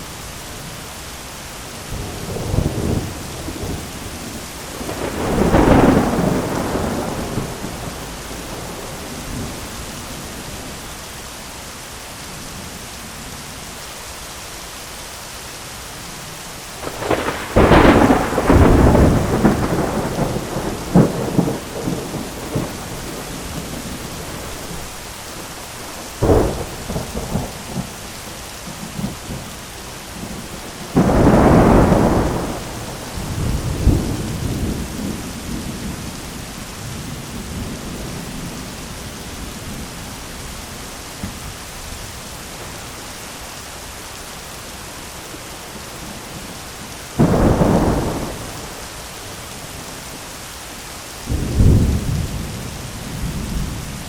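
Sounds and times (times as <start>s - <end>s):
heavy rain on an umbrella: 0.0s - 54.0s
thunder: 4.8s - 9.7s, 16.8s - 24.7s, 30.2s - 36.2s, 47.2s - 48.9s, 51.3s - 54.0s.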